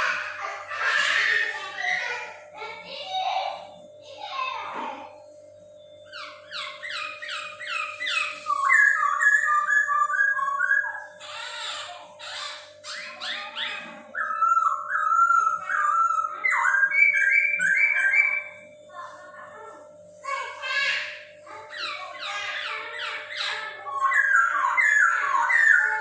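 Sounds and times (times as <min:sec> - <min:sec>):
faint steady hum: 0:00.0 - 0:26.0
bird singing whistled phrases: 0:06.1 - 0:11.1, 0:12.9 - 0:18.6, 0:23.0 - 0:26.0.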